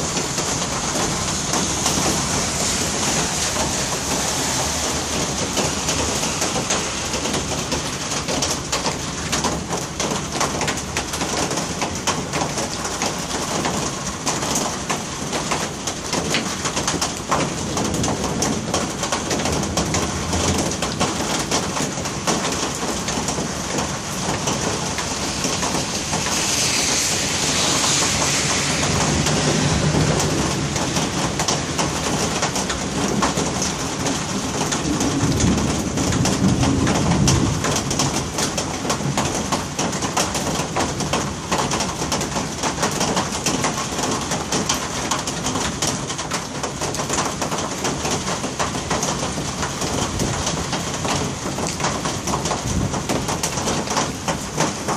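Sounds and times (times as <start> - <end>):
heavy rain pouring on a street: 0.0 - 54.9
low rumbles of thunder: 17.0 - 26.3, 27.6 - 41.2.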